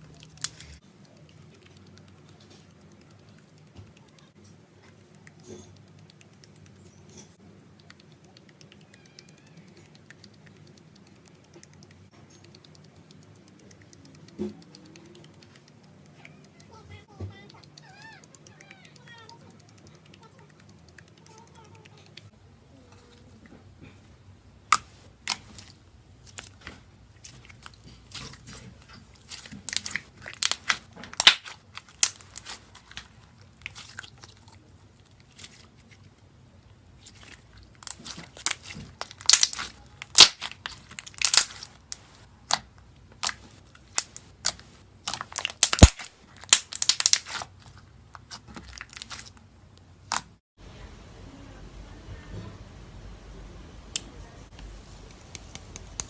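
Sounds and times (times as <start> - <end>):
brittle material crunching: 25.2 - 34.6, 37.0 - 49.4.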